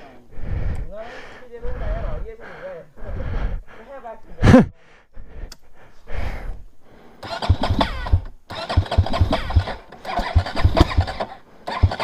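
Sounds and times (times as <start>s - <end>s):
motorcycle engine cranking: 7.2s - 12.0s.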